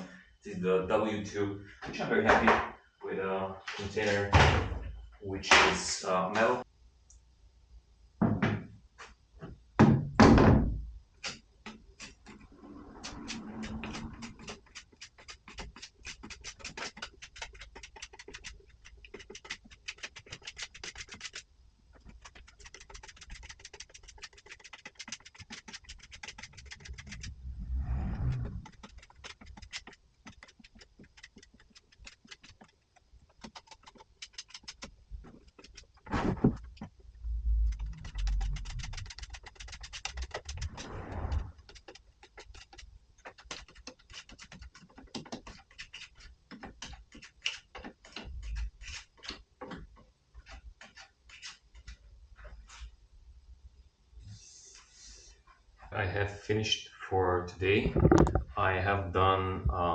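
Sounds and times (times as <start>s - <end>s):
rapid light clicking and tapping: 13.0s - 27.3s, 28.6s - 37.0s, 37.6s - 40.8s, 41.6s - 52.0s.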